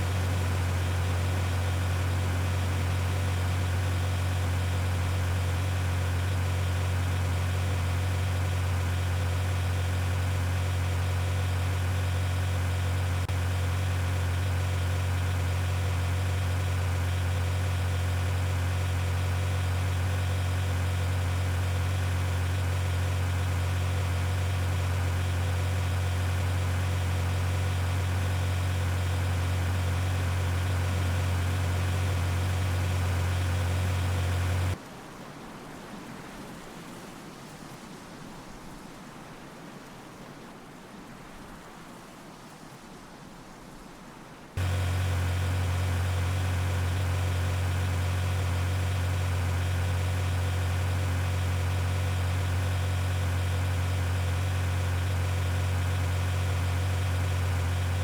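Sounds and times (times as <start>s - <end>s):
low mechanical hum: 44.6s - 58.0s.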